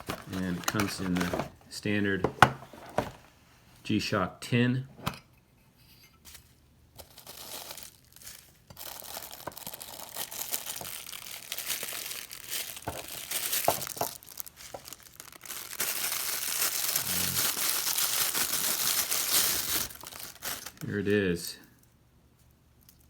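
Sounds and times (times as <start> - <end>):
plastic wrap crinkling: 0.0 - 1.6, 7.0 - 21.2.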